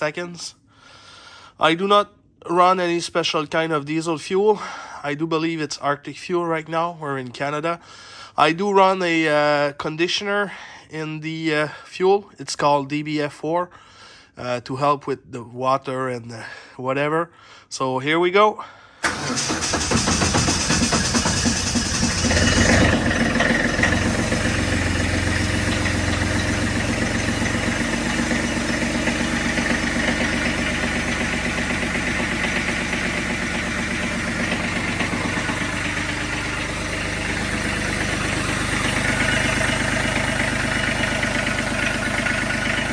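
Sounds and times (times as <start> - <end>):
diesel engine idling: 19.0 - 42.9
starter motor cranking: 19.0 - 42.9.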